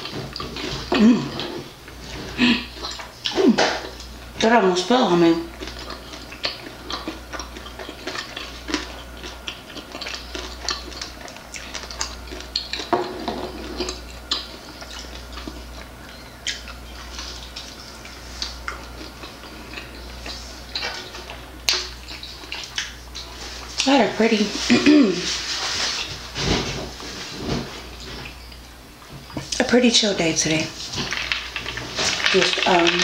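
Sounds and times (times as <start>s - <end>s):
crunching chicken wings: 5.4s - 23.9s, 30.7s - 33.0s
wet mouth clicks from chewing: 5.5s - 12.9s, 17.5s - 23.3s.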